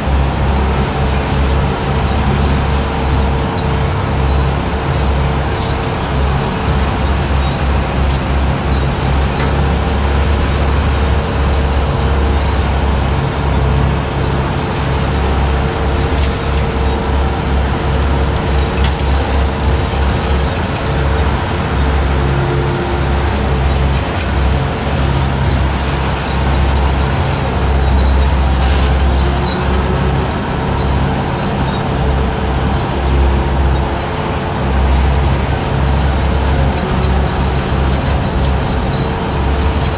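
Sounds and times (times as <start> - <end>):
skid steer engine droning: 0.0 - 39.9.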